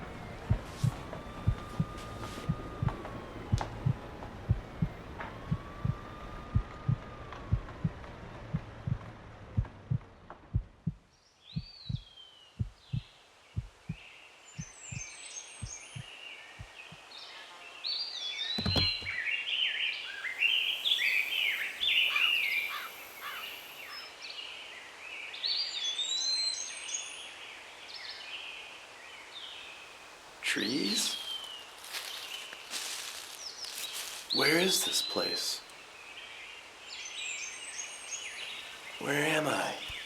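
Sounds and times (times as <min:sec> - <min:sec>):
birdsong chirps and whistles: 0:00.0 - 0:07.0, 0:11.1 - 0:40.0
heartbeat thumping: 0:00.0 - 0:14.0, 0:14.6 - 0:17.0, 0:18.6 - 0:19.2.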